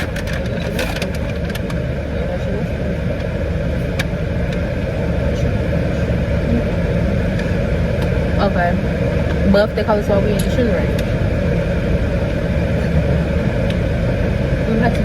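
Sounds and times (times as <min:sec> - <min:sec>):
car engine rumble from inside cabin: 0:00.0 - 0:15.0.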